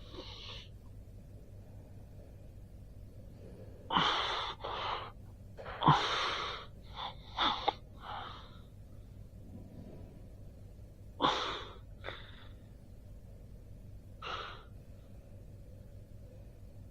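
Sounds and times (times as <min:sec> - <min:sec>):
person breathing forcefully: 0:03.2 - 0:09.0, 0:11.2 - 0:12.8, 0:14.2 - 0:15.2.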